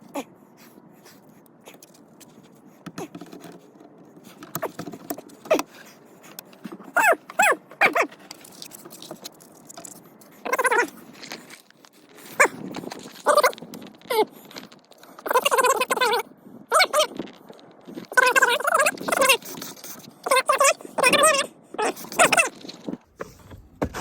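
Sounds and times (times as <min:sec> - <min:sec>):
dog whining: 0:06.8 - 0:08.1, 0:10.4 - 0:11.0, 0:13.2 - 0:14.3, 0:15.1 - 0:17.1, 0:20.2 - 0:22.6.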